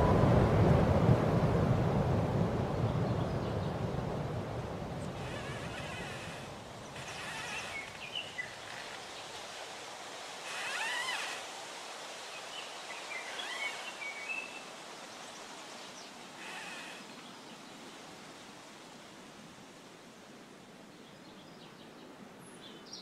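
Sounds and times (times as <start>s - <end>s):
steady background hiss: 1.2s - 23.0s
short bird calls: 5.0s - 9.1s, 10.4s - 11.5s, 13.0s - 14.7s, 16.4s - 17.4s.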